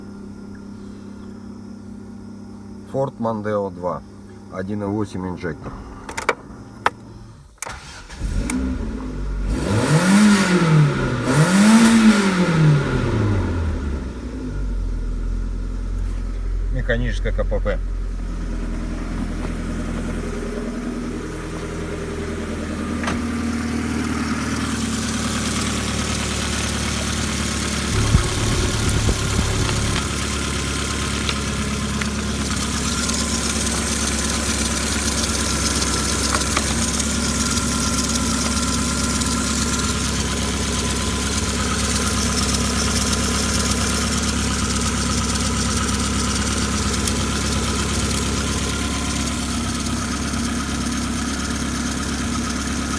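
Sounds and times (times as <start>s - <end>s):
car engine idling: 3.7s - 52.9s
engine knocks: 21.5s - 52.9s.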